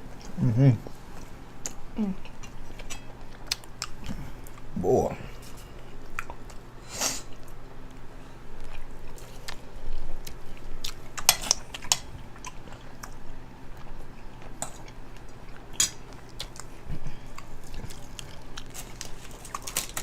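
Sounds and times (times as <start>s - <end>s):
cutlery clicking against plates: 11.2s - 12.1s
person chewing and biting: 13.8s - 20.0s.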